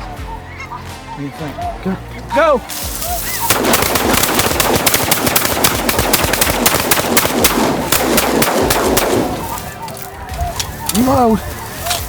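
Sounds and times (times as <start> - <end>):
geese calling: 0.0 - 12.0
shotguns firing volley: 2.7 - 12.0.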